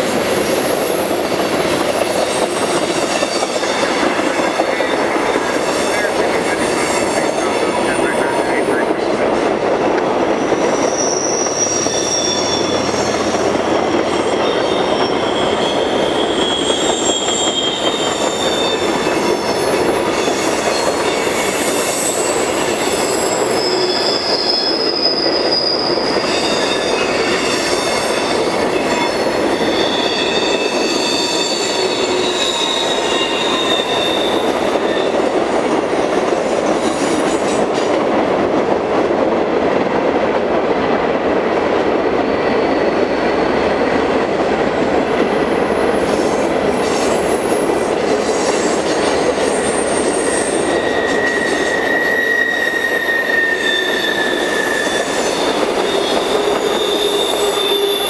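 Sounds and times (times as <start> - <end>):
rumble of wheels on rail: 0.0 - 58.0
high-pitched wheel squeal: 10.4 - 13.5, 14.1 - 35.3, 48.5 - 58.0.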